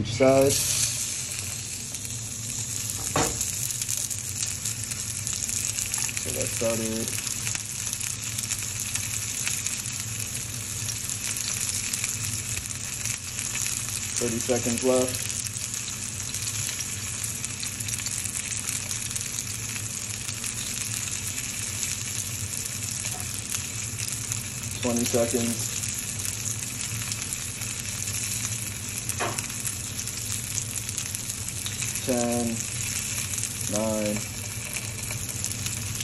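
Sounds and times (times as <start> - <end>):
person's voice: 0.0 - 0.8, 6.2 - 7.2, 14.2 - 15.2, 24.8 - 25.7, 32.0 - 32.6, 33.7 - 34.2
fish searing in frying pan: 0.1 - 36.0.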